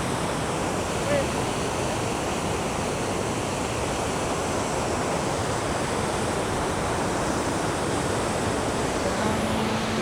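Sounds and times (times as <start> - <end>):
waterfall roaring: 6.7 - 10.0.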